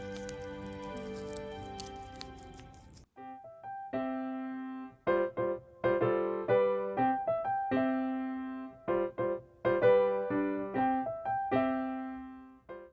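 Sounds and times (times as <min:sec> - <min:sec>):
piano melody: 0:00.0 - 0:12.9.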